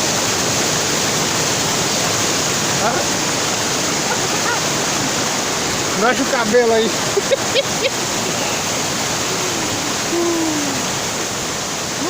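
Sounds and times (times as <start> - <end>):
waterfall rushing: 0.0 - 12.0
faint voice-like tone: 9.2 - 10.9.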